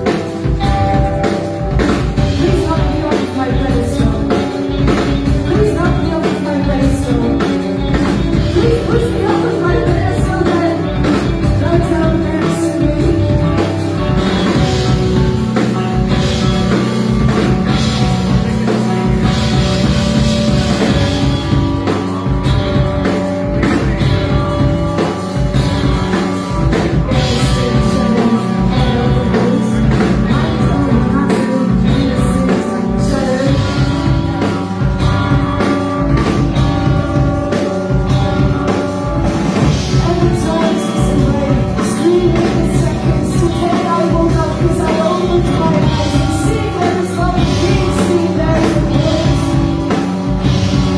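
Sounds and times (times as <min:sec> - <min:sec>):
rock band playing live: 0:00.0 - 0:50.9.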